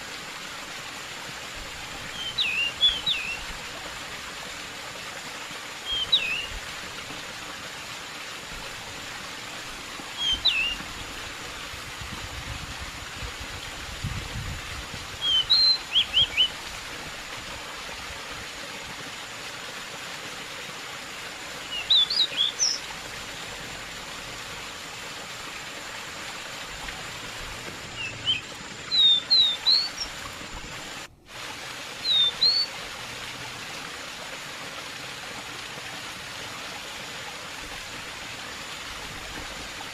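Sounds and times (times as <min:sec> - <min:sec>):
running water: 0:00.0 - 0:39.9
bird singing chirpy whistles: 0:02.1 - 0:03.4, 0:05.8 - 0:06.6, 0:10.2 - 0:10.8, 0:15.2 - 0:16.5, 0:21.7 - 0:22.8, 0:27.9 - 0:30.2, 0:32.0 - 0:32.7.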